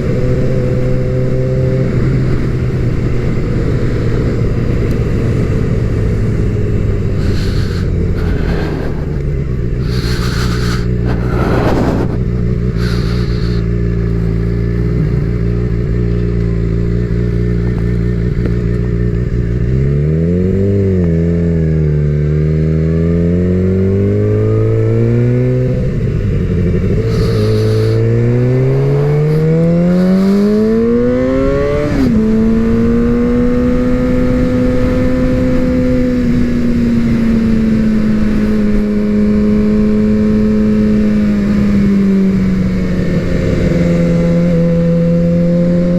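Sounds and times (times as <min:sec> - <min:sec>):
motorcycle engine revving: 0:00.0 - 0:45.9
bursts of rushing noise: 0:07.1 - 0:13.6.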